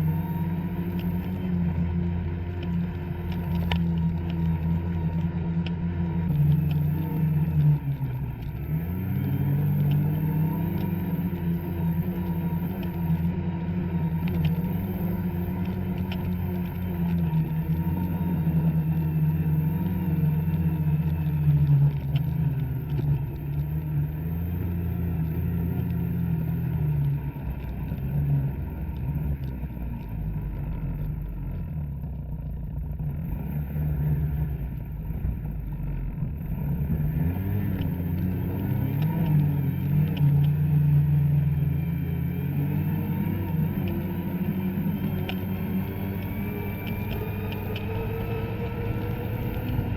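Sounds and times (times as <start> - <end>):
snowmobile engine running: 0.0 - 49.9.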